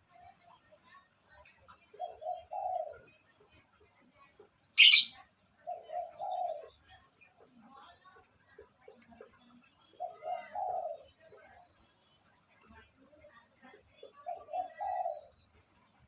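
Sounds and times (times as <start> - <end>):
dove cooing: 1.7 - 3.3, 5.6 - 6.9, 9.2 - 11.6, 14.0 - 15.4.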